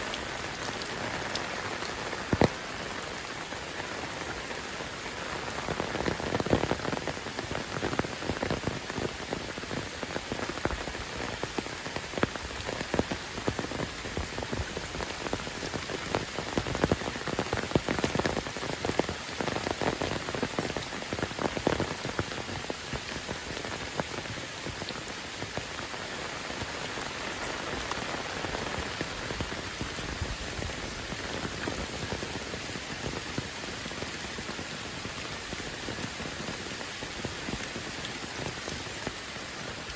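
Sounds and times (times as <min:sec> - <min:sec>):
close raindrops striking: 0:00.0 - 0:39.9
heavy rain falling: 0:00.0 - 0:39.9.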